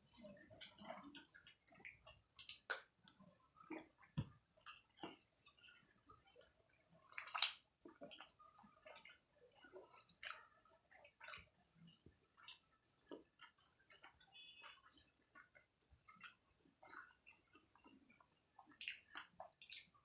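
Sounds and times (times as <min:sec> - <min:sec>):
wet chewing: 0:00.6 - 0:20.0.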